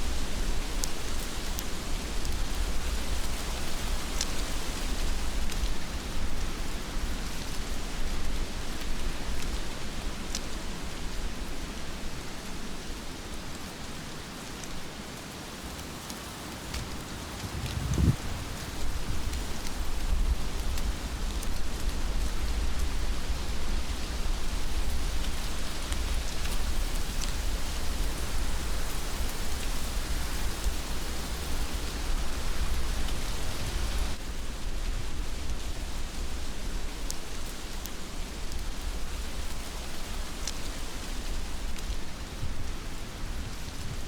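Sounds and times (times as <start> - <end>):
rain drops ticking: 0.0 - 44.0
heavy rain hissing: 15.4 - 34.2
deep low rumble: 17.1 - 19.4.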